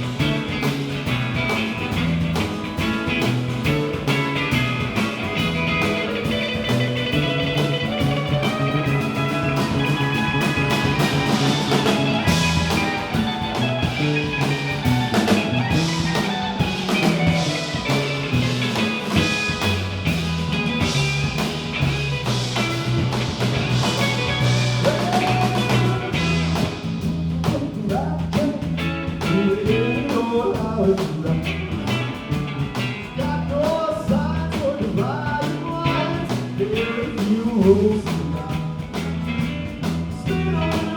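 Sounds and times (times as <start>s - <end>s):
bass line: 0.0s - 40.9s
lead guitar: 0.0s - 40.9s
drum hits: 7.8s - 26.8s.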